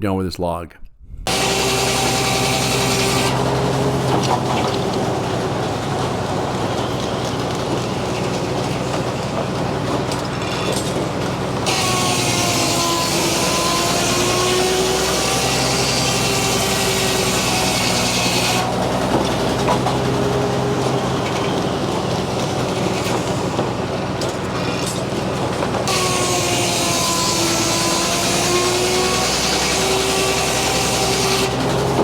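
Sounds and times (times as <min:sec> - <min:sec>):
saw blade cutting wood: 0:01.3 - 0:05.0, 0:09.9 - 0:23.8, 0:24.6 - 0:32.0
circular sawmill running: 0:01.3 - 0:32.0.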